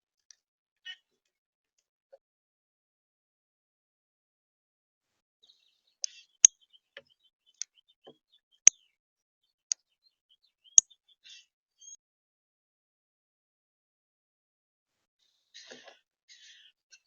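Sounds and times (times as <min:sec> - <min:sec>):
soft bird twittering: 0:09.7 - 0:12.0.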